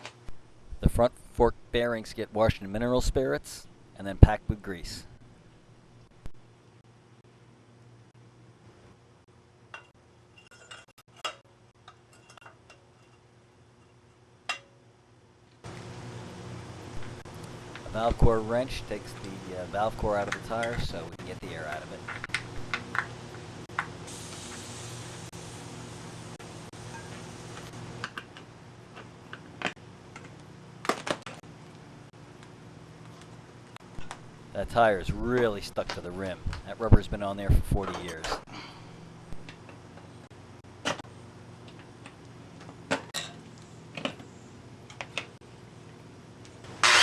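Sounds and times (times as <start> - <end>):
low steady hum: 0.0 - 47.0
metal parts clinking: 10.4 - 11.3.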